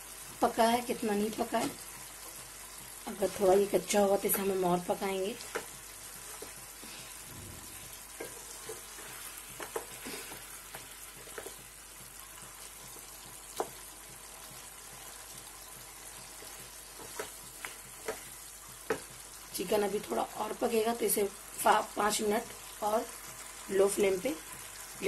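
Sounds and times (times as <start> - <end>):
chicken sizzling in a pan: 0.0 - 25.0
spatula knocking against pan: 16.4 - 19.2.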